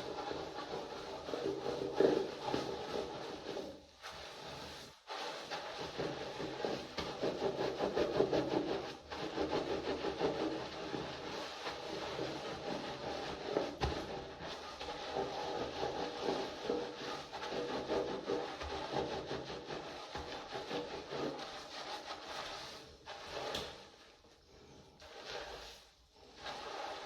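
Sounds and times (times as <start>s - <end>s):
hands rubbing wet hair: 14.5s - 27.0s.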